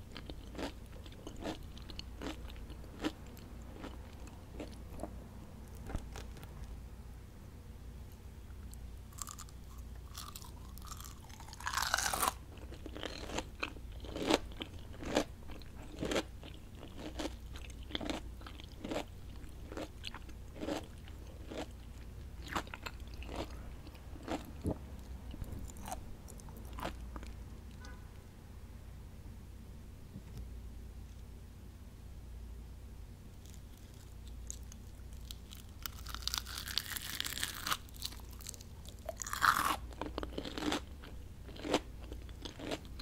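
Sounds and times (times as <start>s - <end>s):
crunching onion rings: 0.0s - 5.1s, 8.6s - 27.4s, 33.4s - 43.0s
crunchy chewing: 0.0s - 6.7s, 8.5s - 28.0s, 33.4s - 43.0s.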